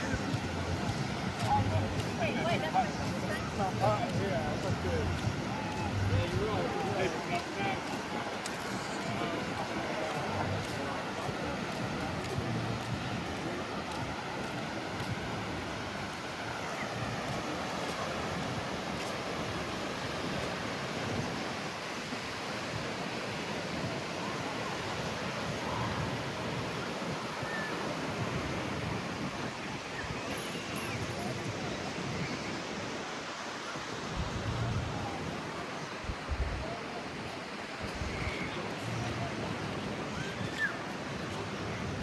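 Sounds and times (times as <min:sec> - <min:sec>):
breaking surf: 0:00.0 - 0:42.0
wind buffeting microphone: 0:33.9 - 0:36.9, 0:37.7 - 0:42.0.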